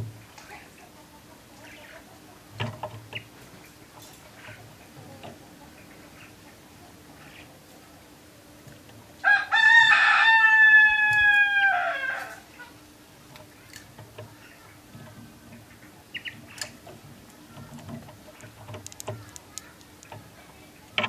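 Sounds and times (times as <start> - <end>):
rooster crowing: 9.2 - 12.5.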